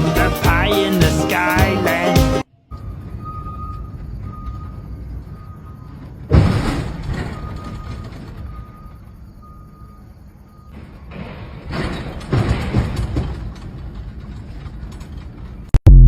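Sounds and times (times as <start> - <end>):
truck reverse alarm beeping: 2.6 - 6.3, 6.9 - 11.1
loud clatter: 11.1 - 15.8.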